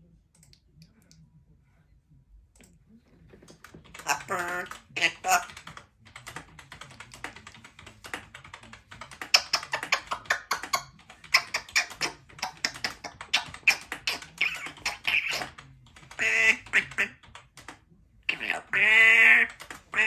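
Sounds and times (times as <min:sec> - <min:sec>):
typing on a keyboard: 0:03.4 - 0:20.0.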